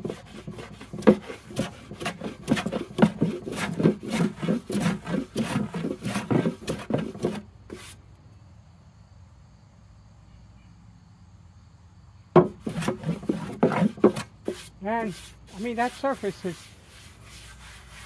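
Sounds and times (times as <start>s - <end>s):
hand plane shaving wood: 0.0s - 8.0s, 12.4s - 18.0s.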